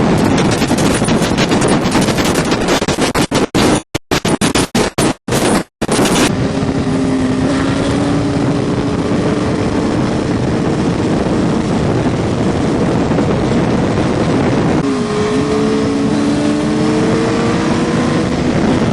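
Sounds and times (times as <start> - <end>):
wind and road noise: 0.0 - 18.9
motorcycle engine running: 4.2 - 18.9.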